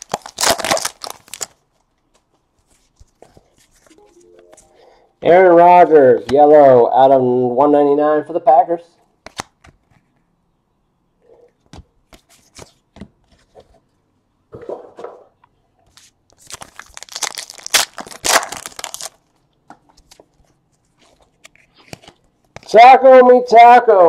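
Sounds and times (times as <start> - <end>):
wrapper tearing and crinkling: 0.0 - 1.6, 16.4 - 19.3
cards clicking and rustling: 9.2 - 10.2, 21.0 - 22.7.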